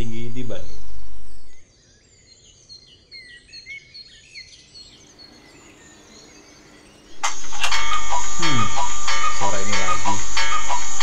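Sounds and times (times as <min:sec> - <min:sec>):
small birds chirping: 0:00.0 - 0:07.1.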